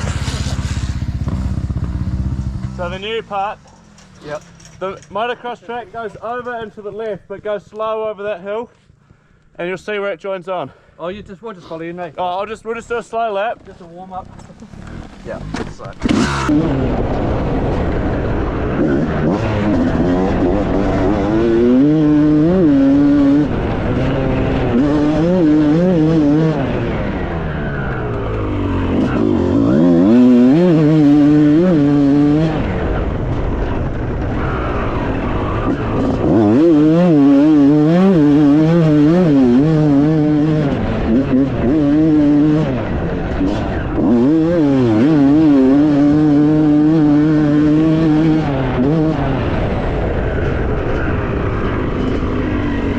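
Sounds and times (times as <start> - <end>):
motocross bike engine: 0.0 - 7.5, 12.3 - 52.9.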